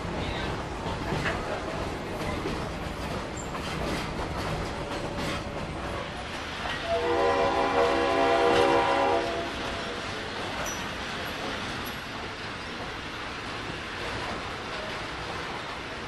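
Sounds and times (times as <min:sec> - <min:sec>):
train rumbling: 0:00.0 - 0:16.0
locomotive horn chord: 0:06.8 - 0:09.6.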